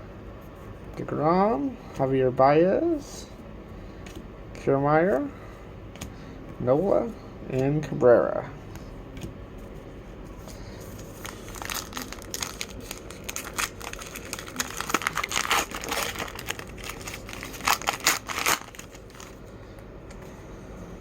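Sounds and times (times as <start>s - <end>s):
wrapper crinkling and tearing: 11.0s - 19.4s.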